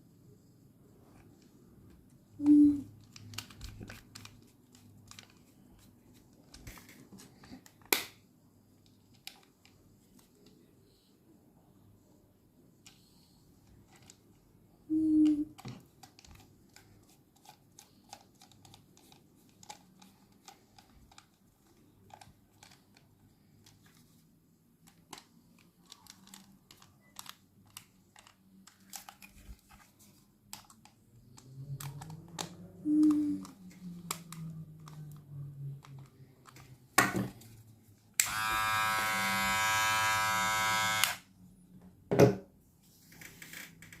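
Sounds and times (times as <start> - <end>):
electric grooming device motor: 38.2 - 41.3.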